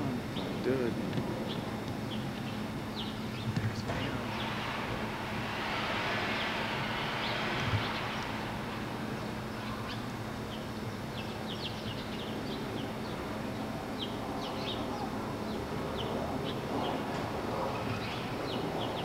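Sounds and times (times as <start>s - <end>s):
small birds chirping: 0.0s - 4.5s, 9.2s - 19.0s
steady background hum: 0.0s - 19.0s.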